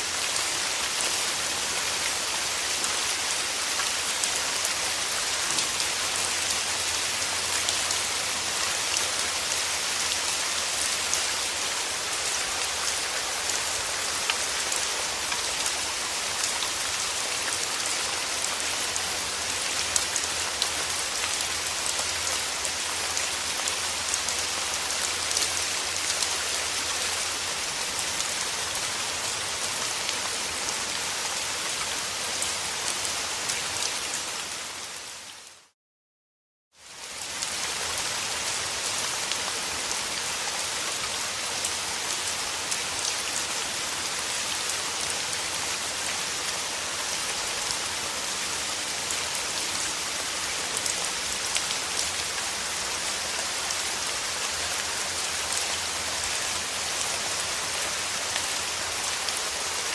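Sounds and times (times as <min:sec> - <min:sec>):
steady rain falling: 0:00.0 - 0:35.8, 0:36.8 - 0:59.9.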